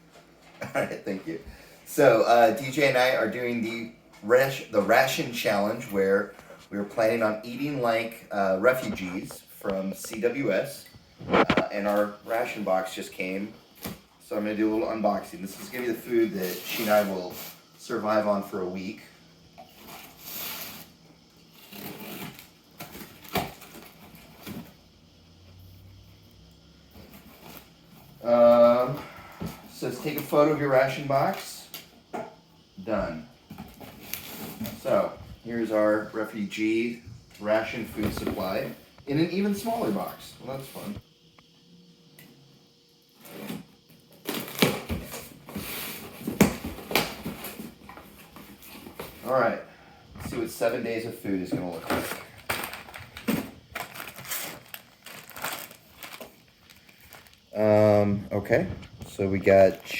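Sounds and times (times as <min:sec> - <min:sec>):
cardboard scraping and rustling: 0:11.2 - 0:12.4, 0:21.5 - 0:24.8, 0:51.5 - 0:56.4
cardboard rustling and scraping: 0:11.2 - 0:12.5, 0:14.7 - 0:17.6, 0:19.7 - 0:24.8, 0:33.5 - 0:35.8, 0:37.5 - 0:41.0, 0:43.2 - 0:49.5, 0:50.2 - 0:57.3.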